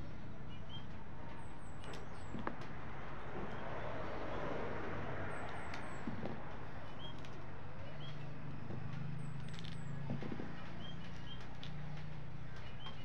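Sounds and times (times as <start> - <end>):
small bird chirping: 0.4 - 2.6, 5.3 - 13.0.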